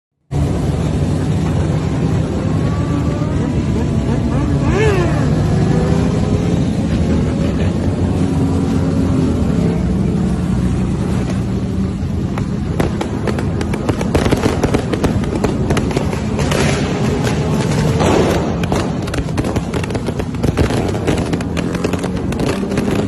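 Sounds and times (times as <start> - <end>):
motorcycle engine running: 0.3 - 23.0
sharp cracks and pops: 12.2 - 23.0.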